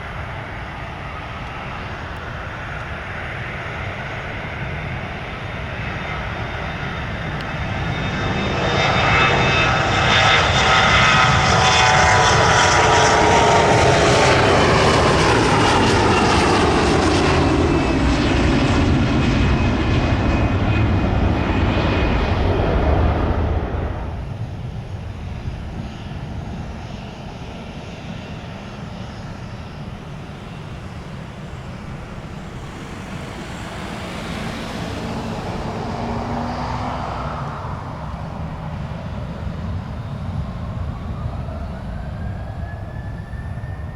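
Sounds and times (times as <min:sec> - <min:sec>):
aircraft passing close by: 0:00.0 - 0:43.9.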